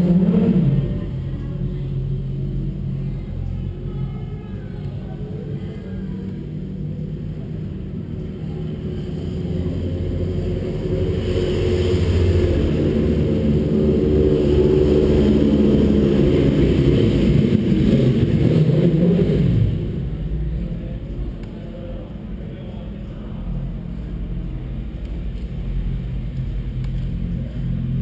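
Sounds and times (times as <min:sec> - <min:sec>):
motorcycle engine: 0:00.0 - 0:21.4.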